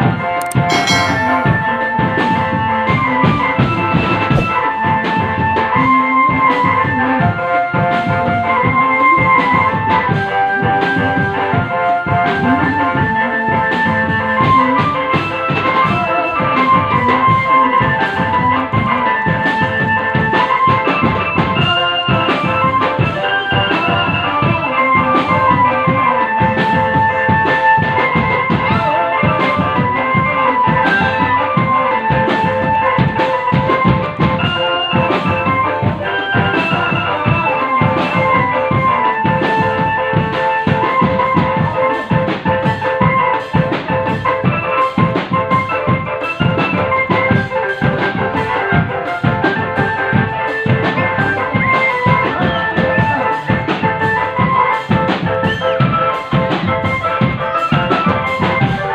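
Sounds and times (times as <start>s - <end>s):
melody line: 0.4s - 2.6s
drums beating: 0.4s - 58.9s.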